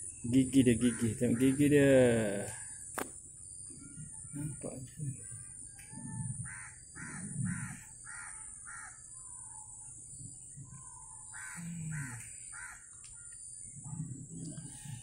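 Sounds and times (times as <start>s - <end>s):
bird cawing harshly: 6.5s - 9.0s, 11.3s - 12.9s.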